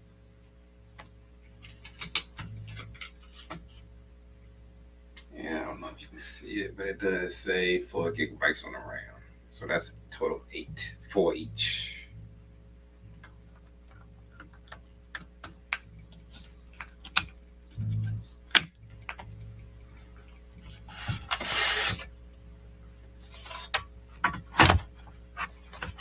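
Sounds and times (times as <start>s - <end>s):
steady low hum: 0.0s - 26.0s
small clicks and taps: 1.0s - 3.6s, 13.2s - 17.4s
short scraping slide: 20.9s - 22.1s.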